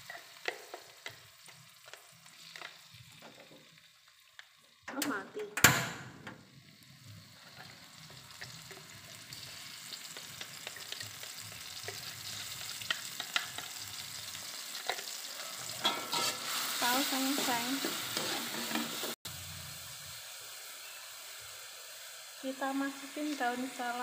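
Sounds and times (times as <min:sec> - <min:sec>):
paste sizzling in hot oil: 0:00.0 - 0:04.8, 0:06.5 - 0:24.0
metal spatula scraping: 0:14.8 - 0:19.2.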